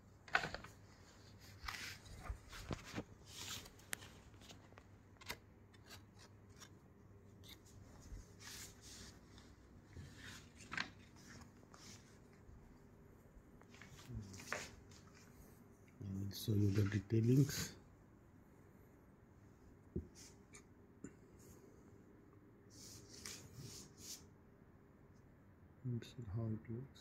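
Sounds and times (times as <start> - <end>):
cloth and packaging rustling: 0.2 - 6.8.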